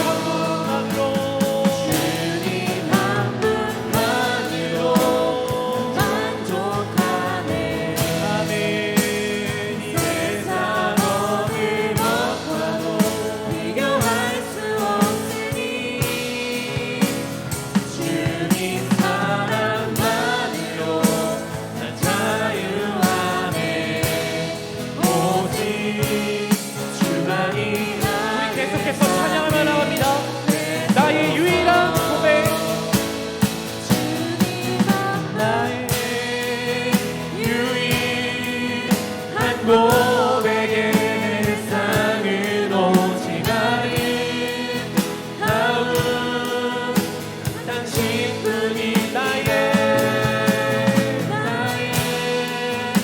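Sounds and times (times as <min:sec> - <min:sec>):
group singing worship song: 0:00.0 - 0:53.0
instrumental accompaniment: 0:00.0 - 0:53.0.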